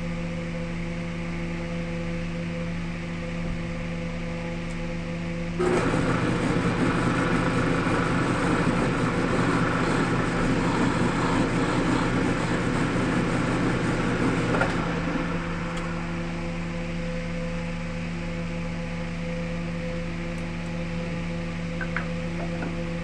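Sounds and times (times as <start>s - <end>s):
tool scraping spinning wood: 5.6s - 15.2s
wood lathe motor hum: 5.6s - 17.0s.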